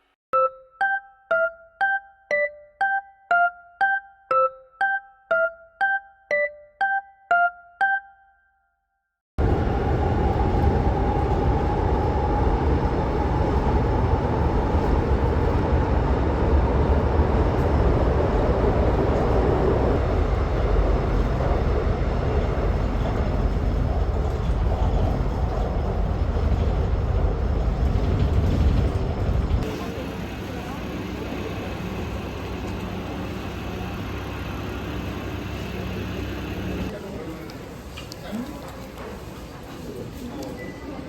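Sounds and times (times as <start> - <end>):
vehicle rumbling in motion: 9.4 - 37.0.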